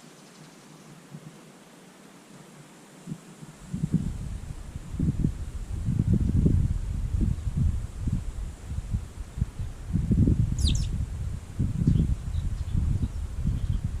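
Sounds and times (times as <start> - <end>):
faint bird chirps: 0.0 - 1.0, 10.5 - 11.0
wind buffeting microphone: 3.1 - 14.0
small bird calling: 10.5 - 11.0.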